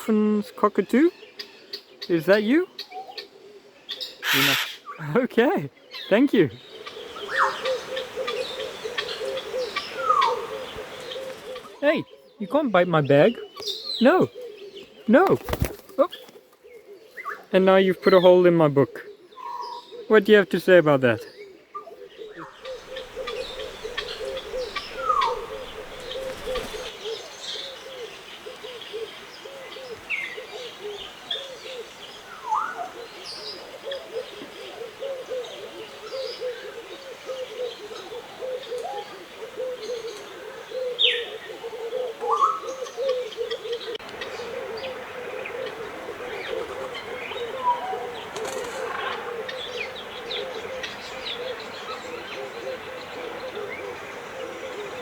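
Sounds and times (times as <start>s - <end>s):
chatter of low bird calls: 0.0s - 55.0s
whistled bird calls sliding: 22.6s - 27.0s.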